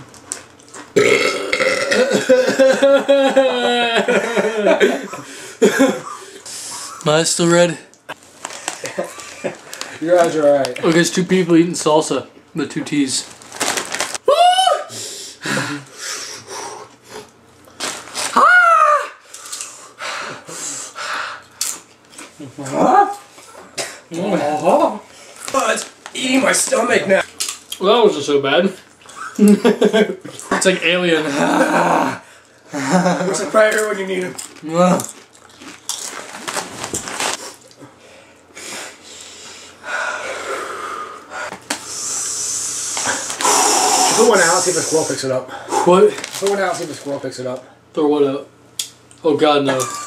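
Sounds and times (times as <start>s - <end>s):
person crying out: 2.1s - 4.1s, 14.2s - 15.9s, 18.3s - 19.2s, 22.6s - 23.2s, 31.2s - 32.3s
sharp hissing breaths: 14.9s - 17.3s, 19.2s - 21.5s, 37.4s - 45.9s.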